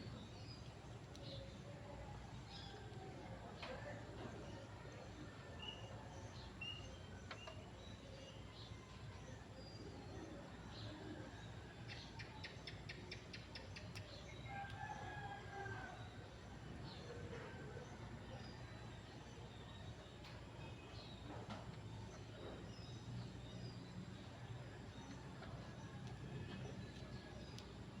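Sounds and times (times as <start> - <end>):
faint birds chirping: 0.0 - 28.0.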